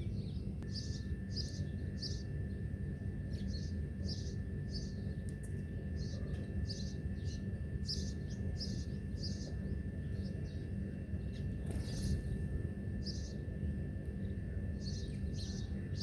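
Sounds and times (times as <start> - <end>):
small birds chirping: 0.0 - 2.6, 3.2 - 13.5, 14.1 - 16.0
low background rumble: 0.0 - 3.5.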